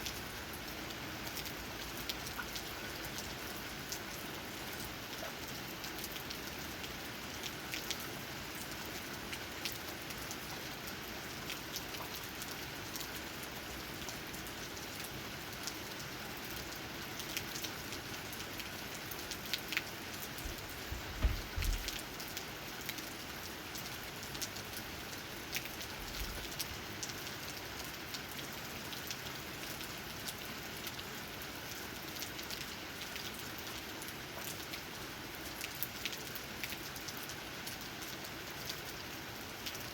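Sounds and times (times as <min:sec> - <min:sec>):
rain tapping on leaves: 0:00.0 - 0:39.9
brief low thump: 0:20.5 - 0:22.0.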